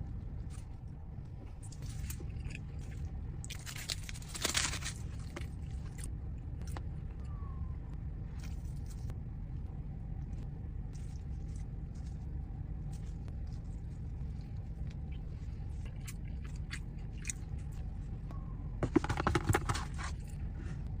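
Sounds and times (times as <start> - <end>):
steady low rumble: 0.0 - 21.0
food crunching and crackling: 0.1 - 7.4, 10.2 - 17.9.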